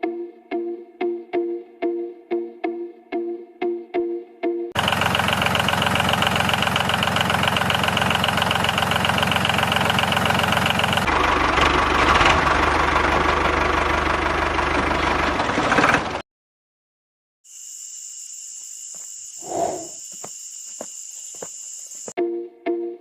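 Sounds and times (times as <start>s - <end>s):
miniature diesel engine running: 4.8s - 16.2s.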